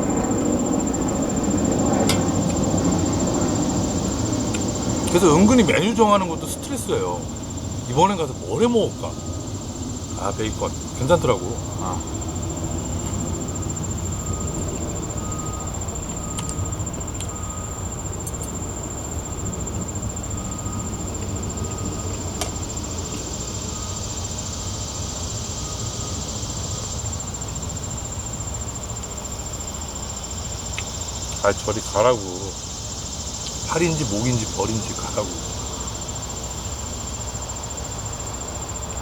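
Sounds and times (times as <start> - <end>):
steady low rumble: 0.0 - 25.1
faint chirp: 0.0 - 28.3, 29.0 - 36.9
hissy insect chorus: 0.0 - 39.0
insects trilling: 0.0 - 39.0.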